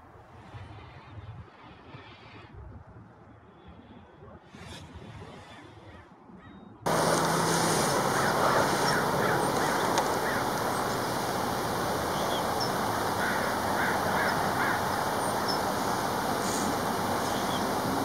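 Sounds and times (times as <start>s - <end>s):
quick bird calls: 6.9s - 18.0s
steady rushing noise: 6.9s - 18.0s.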